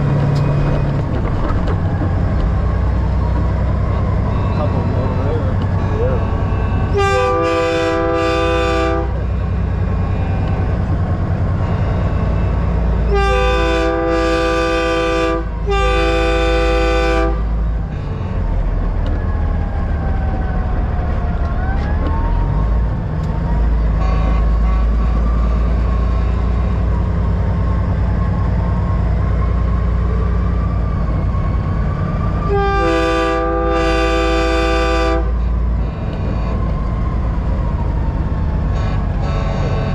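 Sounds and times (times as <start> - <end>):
diesel truck engine rumble: 0.0 - 39.9
road noise: 0.0 - 39.9
truck air horn blasts: 6.6 - 9.5, 11.8 - 18.4, 23.9 - 25.7, 32.4 - 36.6, 38.7 - 39.9.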